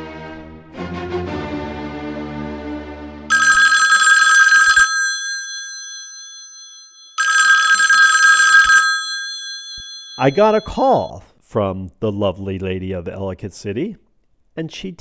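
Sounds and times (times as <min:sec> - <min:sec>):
telephone ringing: 0:03.3 - 0:11.2.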